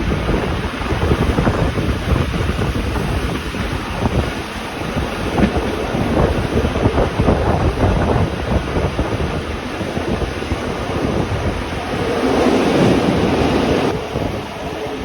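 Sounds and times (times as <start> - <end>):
train rumbling and rattling: 0.0 - 15.0
wind noise on microphone: 0.0 - 15.0.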